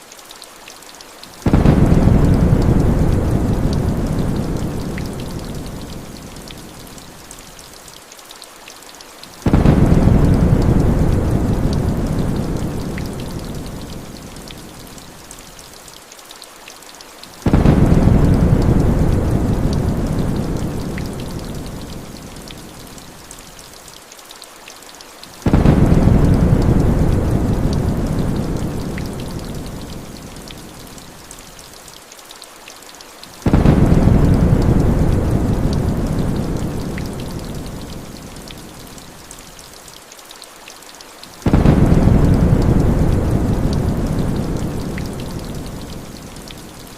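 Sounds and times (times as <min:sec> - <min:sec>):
raindrop ticks: 0:00.0 - 0:46.9
heavy rain hissing: 0:01.2 - 0:08.6, 0:09.2 - 0:15.8, 0:17.2 - 0:24.0, 0:25.0 - 0:32.0, 0:32.9 - 0:46.9
rolling thunder: 0:01.5 - 0:05.8, 0:09.5 - 0:13.8, 0:17.5 - 0:21.5, 0:25.5 - 0:29.5, 0:33.5 - 0:38.0, 0:41.4 - 0:45.9.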